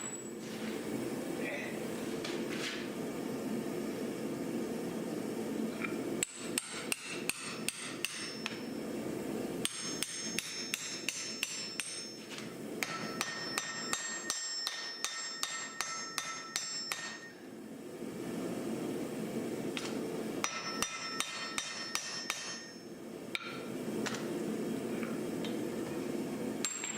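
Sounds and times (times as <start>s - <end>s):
hammer striking metal on anvil: 6.2s - 8.7s, 9.6s - 17.4s, 20.4s - 23.6s, 26.6s - 26.9s.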